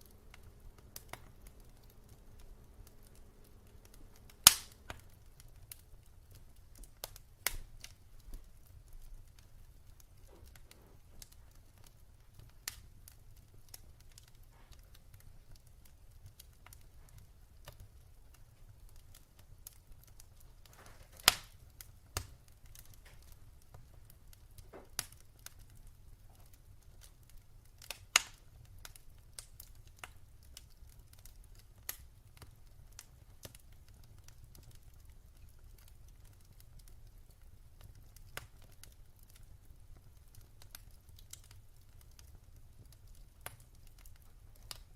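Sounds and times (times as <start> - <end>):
faint low rumble: 0.0 - 7.0
wood fire crackling: 0.0 - 44.9.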